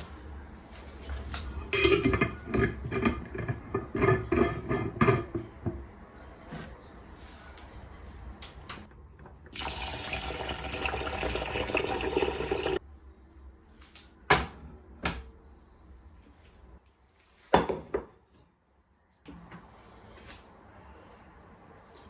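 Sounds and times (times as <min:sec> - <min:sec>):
tap running into sink: 0:09.6 - 0:12.8.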